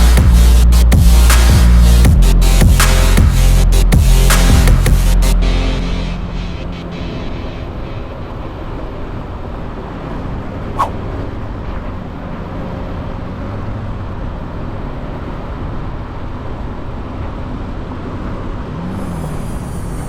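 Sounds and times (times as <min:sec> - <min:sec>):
wind and road noise: 0:05.9 - 0:20.0.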